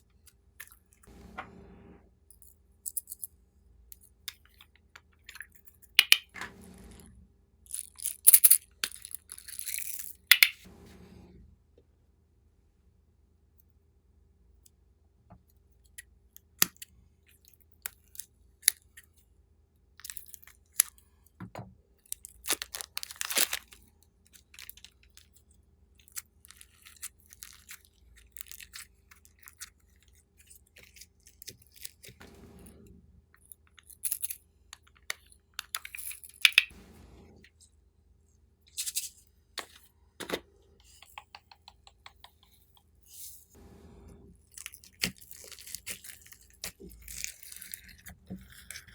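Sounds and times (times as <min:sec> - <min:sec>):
slime clicking and popping: 0:06.0 - 0:06.3
slime squishing: 0:44.4 - 0:48.9.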